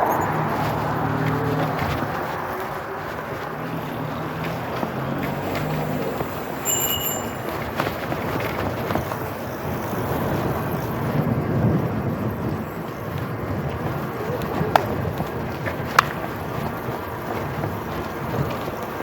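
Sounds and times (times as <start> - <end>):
rolling noise: 0.0 - 19.0
short high ring: 6.6 - 7.6.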